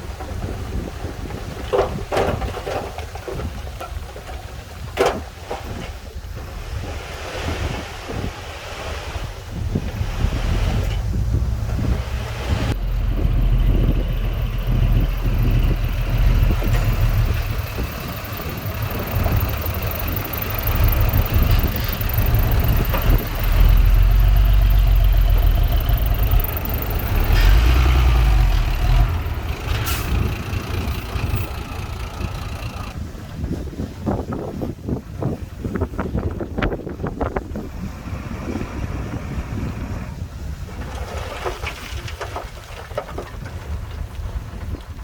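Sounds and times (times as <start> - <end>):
heavy diesel engine rumbling: 8.6 - 33.4.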